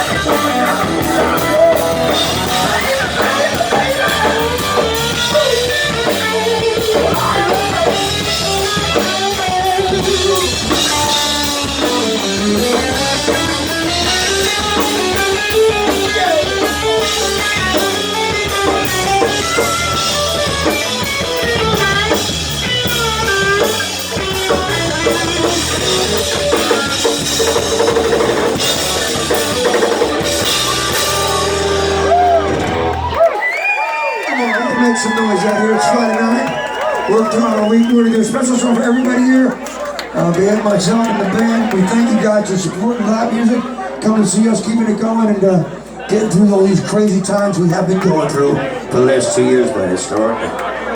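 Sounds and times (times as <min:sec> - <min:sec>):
drum kit: 0:00.0 - 0:33.3
electric guitar lead: 0:00.0 - 0:33.4
live rock band playing: 0:00.0 - 0:50.9.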